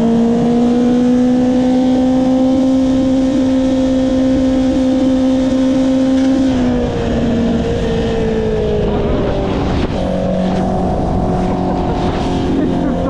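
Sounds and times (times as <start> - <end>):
motorcycle engine running: 0.0 - 13.0
wind rush: 6.3 - 13.0.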